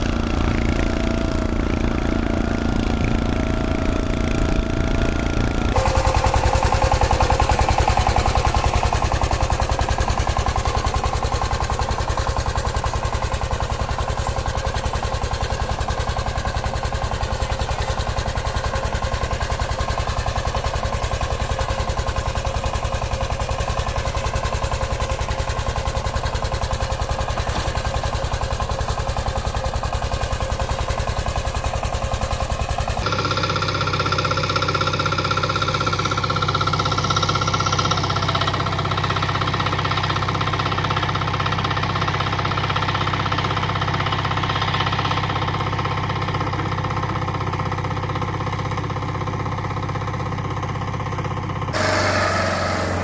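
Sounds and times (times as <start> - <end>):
engine chugging: 0.0 - 53.0
steady engine: 0.0 - 53.0
steady whine: 51.8 - 53.0.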